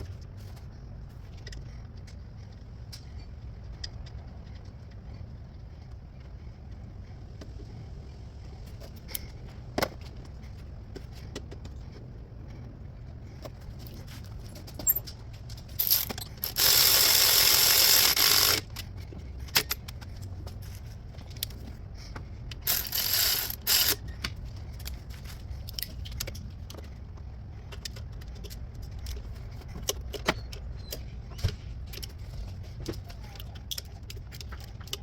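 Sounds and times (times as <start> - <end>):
tools clinking on metal parts: 14.8 - 20.0.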